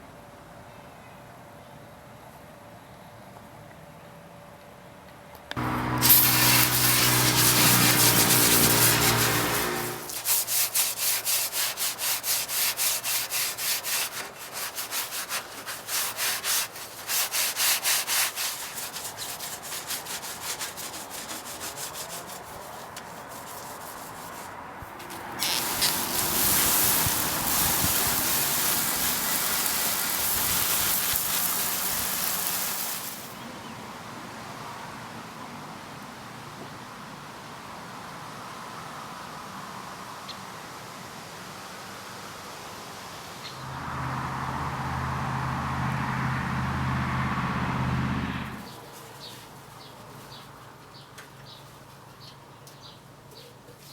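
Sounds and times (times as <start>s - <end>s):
sandpaper rubbing on metal: 5.6s - 33.4s.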